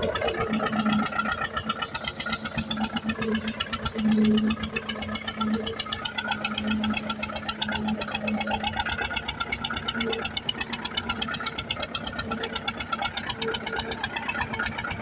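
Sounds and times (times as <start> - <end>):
tractor diesel engine knocking: 0.0 - 15.0.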